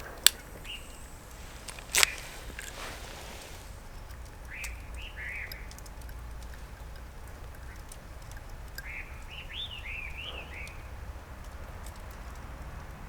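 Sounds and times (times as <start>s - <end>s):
bird calling squeaky notes: 0.0s - 5.8s
low outdoor rumble: 0.0s - 13.0s.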